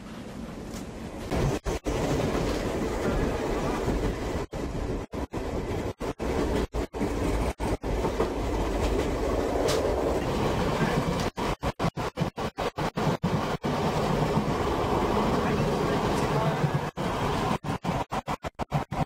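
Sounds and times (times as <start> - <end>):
train rumble inside carriage: 0.0 - 19.0
wheels clickety-clack: 0.6 - 19.0.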